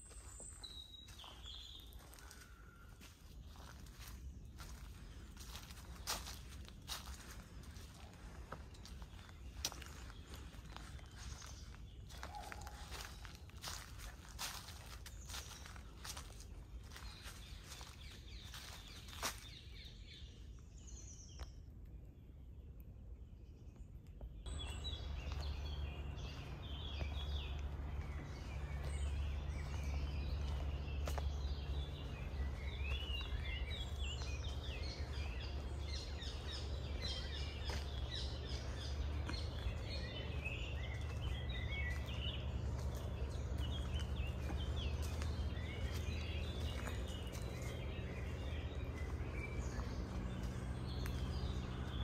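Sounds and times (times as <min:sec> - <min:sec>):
small birds chirping and twittering: 0:00.0 - 0:52.0
steady low rumble: 0:03.1 - 0:21.0, 0:21.8 - 0:52.0.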